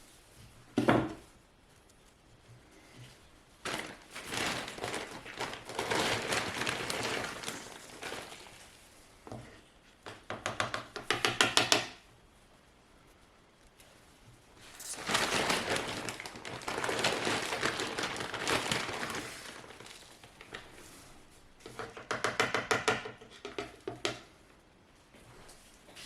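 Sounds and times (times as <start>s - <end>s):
rustling and scraping: 0.0s - 10.2s, 12.0s - 22.0s, 25.0s - 26.0s.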